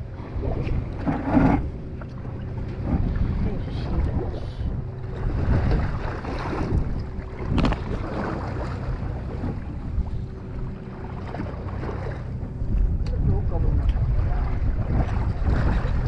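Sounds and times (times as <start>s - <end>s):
boat engine running: 0.0s - 16.0s
wind buffeting microphone: 0.0s - 16.0s.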